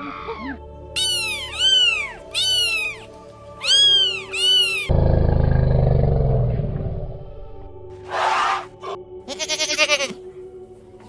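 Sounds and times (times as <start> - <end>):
elephant call: 0.1 - 5.0
cat meowing: 3.6 - 4.9.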